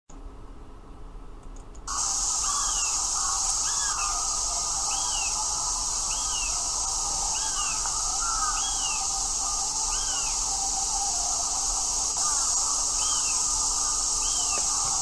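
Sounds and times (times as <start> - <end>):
steady high hiss: 1.4 - 15.0
bird calling: 1.9 - 15.0.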